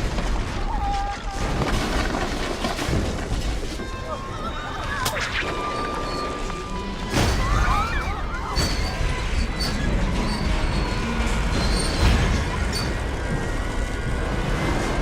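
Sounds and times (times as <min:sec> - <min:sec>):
high metal squeals: 0:04.3 - 0:14.6
heavy train rumble: 0:06.0 - 0:15.0.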